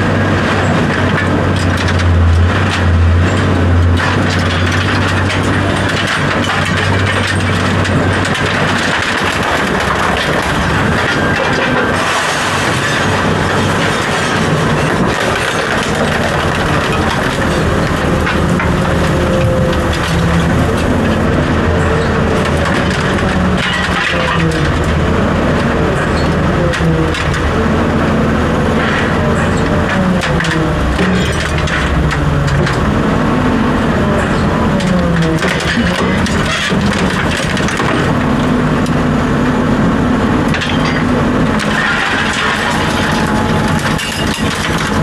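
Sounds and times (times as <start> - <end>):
low mechanical hum: 0.0 - 45.0
panels creaking and scraping: 34.0 - 38.2.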